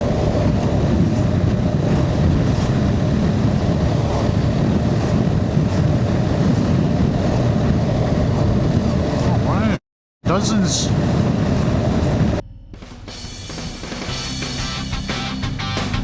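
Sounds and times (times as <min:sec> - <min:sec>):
wind buffeting microphone: 0:00.0 - 0:12.4.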